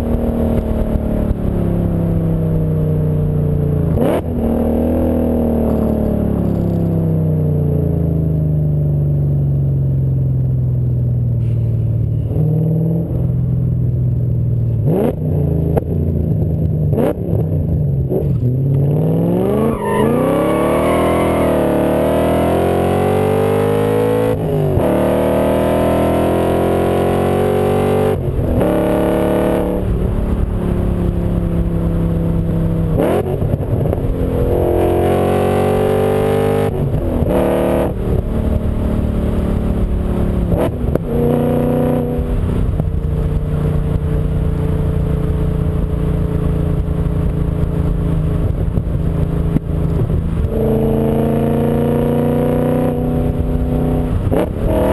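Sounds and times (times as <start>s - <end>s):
car engine accelerating hard: 14.8s - 54.9s.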